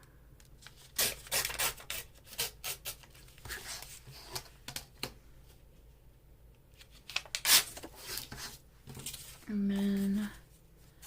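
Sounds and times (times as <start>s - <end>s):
paper rustling: 6.8s - 11.0s.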